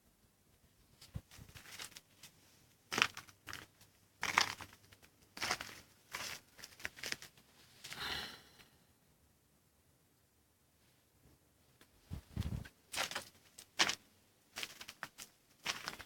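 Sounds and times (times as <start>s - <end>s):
dry material crunching: 2.9s - 7.4s, 12.9s - 16.0s.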